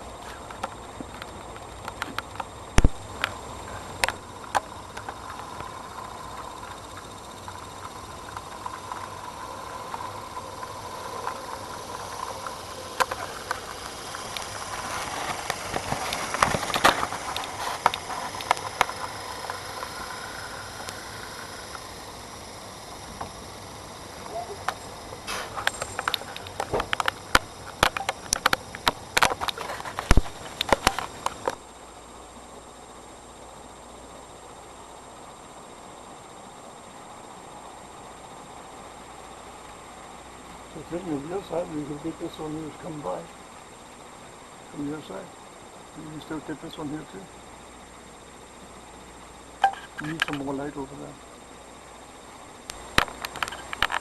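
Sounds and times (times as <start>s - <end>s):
wheels clicking over rail joints: 0.0s - 22.0s
model train whine: 2.8s - 31.6s.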